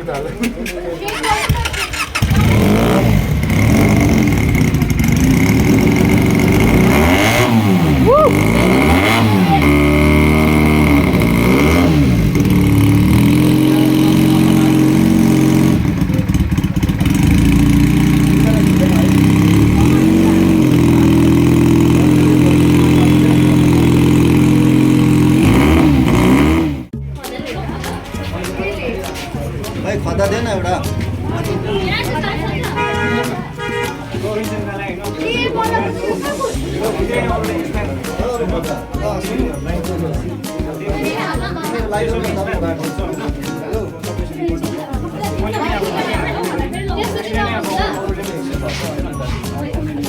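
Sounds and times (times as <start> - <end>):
motorcycle engine revving: 0.9 - 27.0, 29.1 - 41.5.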